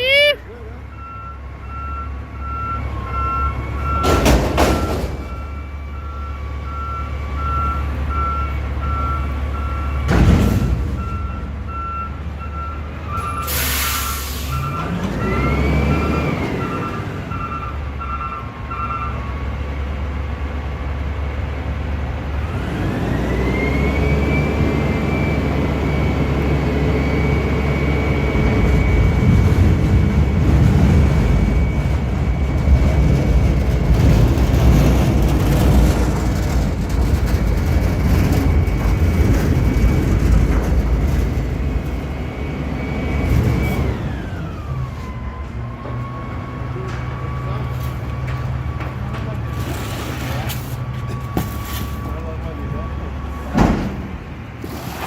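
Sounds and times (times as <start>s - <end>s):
diesel engine: 0.0s - 55.0s
truck backup alarm beeping: 0.1s - 20.5s, 22.5s - 54.7s
air brake hiss: 13.4s - 14.7s.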